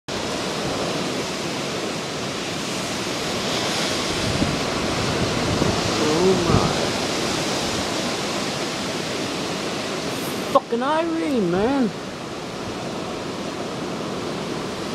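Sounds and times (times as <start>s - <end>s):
hurricane wind blowing: 0.1s - 14.9s.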